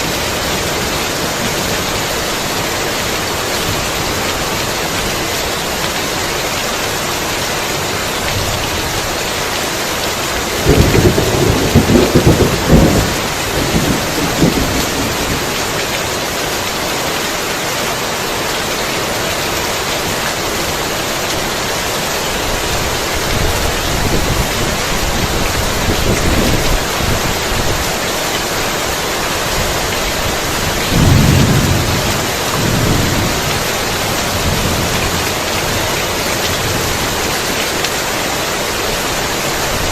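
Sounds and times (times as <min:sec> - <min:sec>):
heavy rain: 0:00.0 - 0:39.9
thunder rolling: 0:10.6 - 0:15.5, 0:30.9 - 0:35.4.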